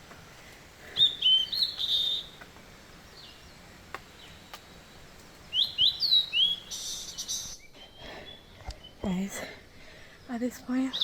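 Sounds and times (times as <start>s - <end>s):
birds chirping: 0.0s - 11.0s
faint clicks: 3.9s - 5.4s.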